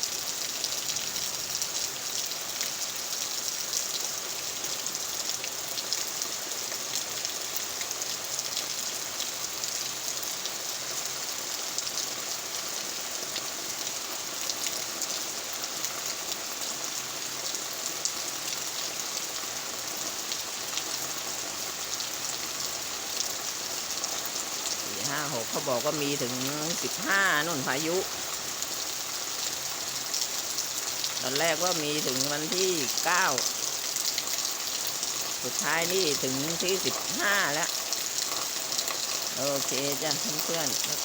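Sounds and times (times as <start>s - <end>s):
rain falling: 0.0s - 41.0s.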